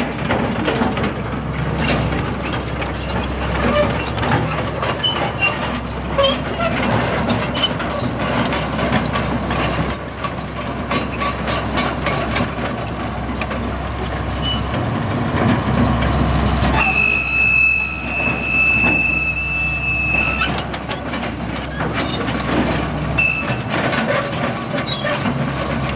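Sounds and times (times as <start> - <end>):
excavator diesel engine rumbling: 0.0 - 25.9
high-pitched squeal: 16.6 - 22.4, 23.2 - 24.9.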